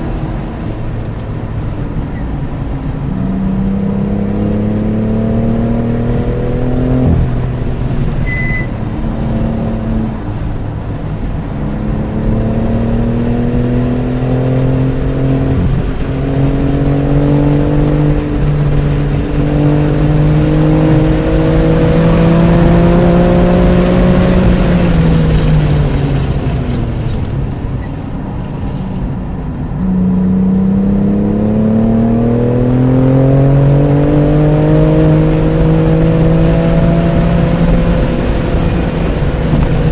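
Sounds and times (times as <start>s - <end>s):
car engine accelerating hard: 0.0s - 39.9s
short high beep: 8.2s - 8.8s.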